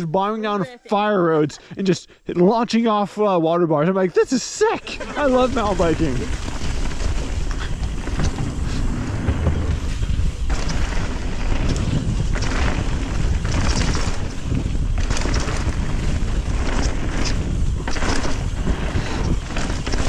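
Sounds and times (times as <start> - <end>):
bike rattling over rough ground: 4.9 - 20.0
low rumble: 5.0 - 20.0
wind buffeting microphone: 5.1 - 20.0.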